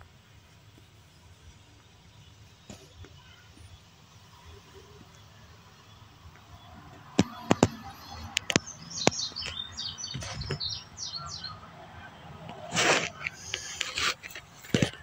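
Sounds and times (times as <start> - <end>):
small bird chirping: 1.0 - 11.7
sharp clicks: 6.4 - 10.7.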